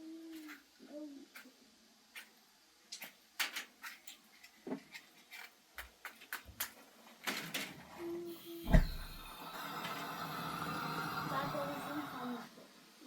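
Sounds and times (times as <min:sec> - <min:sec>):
dull low thumps: 0:08.7 - 0:09.2.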